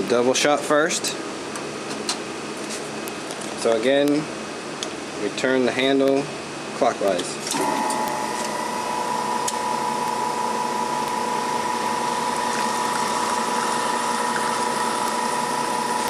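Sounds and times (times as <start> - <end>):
espresso machine pump humming: 7.5 - 16.0.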